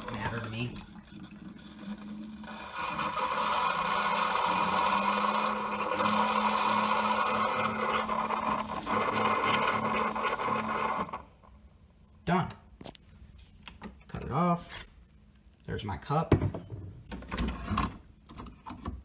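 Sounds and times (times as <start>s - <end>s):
coffee maker pump humming: 0.0s - 12.0s.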